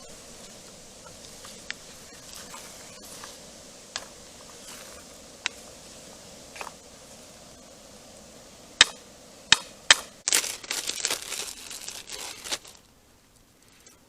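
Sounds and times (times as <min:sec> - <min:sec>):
packaging crinkling: 0:10.2 - 0:12.9.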